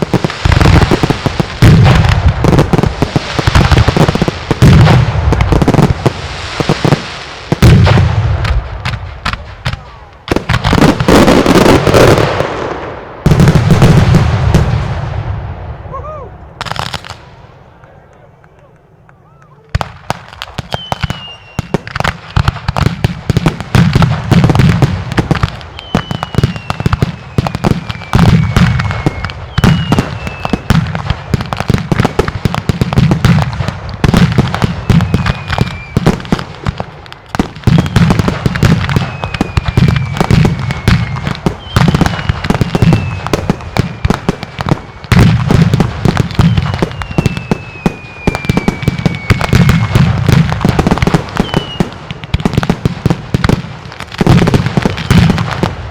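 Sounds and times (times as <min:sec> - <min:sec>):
firecracker volleys: 0:00.0 - 0:15.4, 0:19.7 - 0:55.9
falling whistle: 0:20.7 - 0:21.8, 0:25.7 - 0:30.7, 0:46.4 - 0:50.0.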